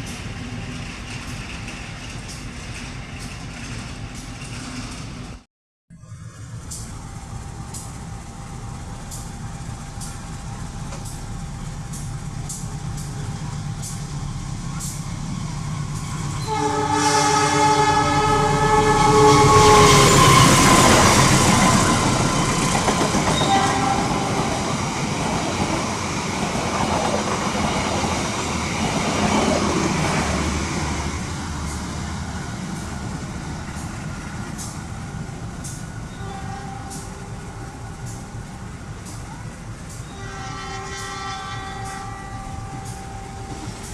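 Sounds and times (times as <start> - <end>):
train rumble and wheel clatter: 0.0 - 5.5, 6.1 - 43.9
train multi-tone horn: 16.3 - 25.3, 35.6 - 43.9.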